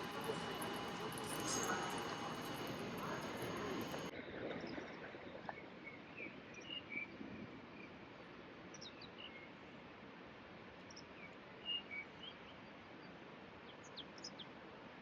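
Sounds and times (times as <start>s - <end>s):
faint bird chirps: 0.0s - 4.1s
noisy hum with high whines: 0.0s - 4.1s.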